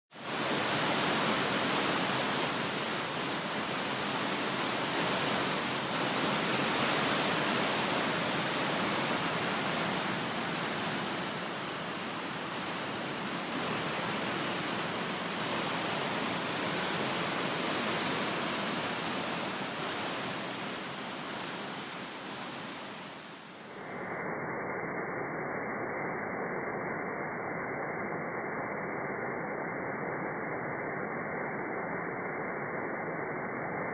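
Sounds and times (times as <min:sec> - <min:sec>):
waterfall rushing: 0:00.2 - 0:23.4.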